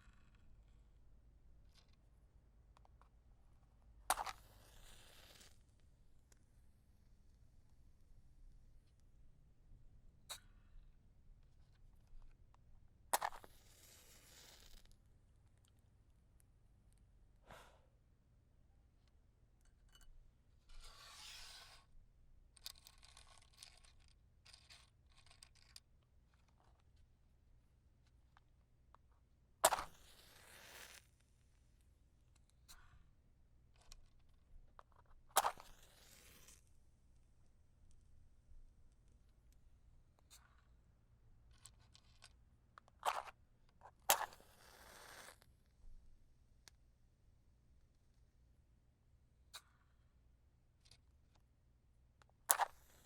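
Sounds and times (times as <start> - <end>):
faint small clicks and taps: 2.7 - 3.2, 22.5 - 27.1, 31.0 - 38.2, 38.9 - 40.9, 49.5 - 50.1
match being put out: 4.1 - 5.6, 29.6 - 31.1, 35.4 - 36.6, 44.1 - 45.4
match striking and flaring: 29.6 - 31.1, 35.4 - 36.6.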